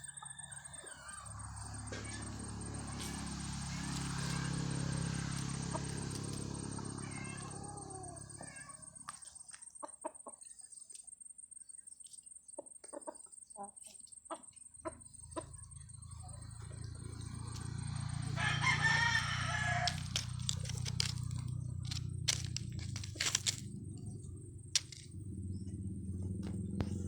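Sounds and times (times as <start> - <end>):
chickens clucking: 0.0 - 10.8, 12.5 - 25.7
low hum: 15.7 - 27.0.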